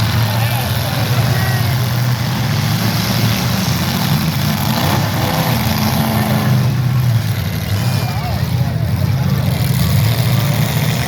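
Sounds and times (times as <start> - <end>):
car engines running loudly: 0.0 - 11.0.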